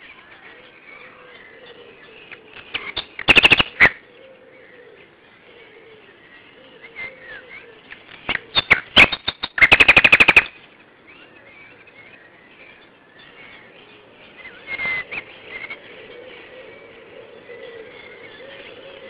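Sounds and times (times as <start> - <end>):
birds chirping: 0.0 - 19.0
sharp clicks: 2.8 - 3.9, 8.3 - 10.6
rattling bird call: 3.0 - 3.9, 8.6 - 10.6.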